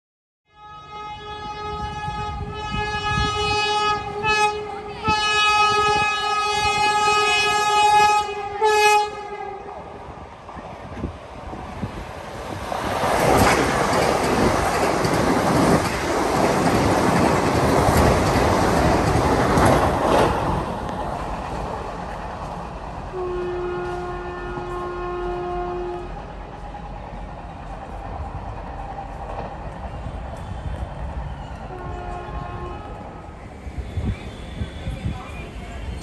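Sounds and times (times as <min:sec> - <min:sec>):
locomotive horn blast: 0:00.5 - 0:09.7, 0:23.1 - 0:26.2, 0:31.7 - 0:33.2
train wheels clattering: 0:12.6 - 0:22.6.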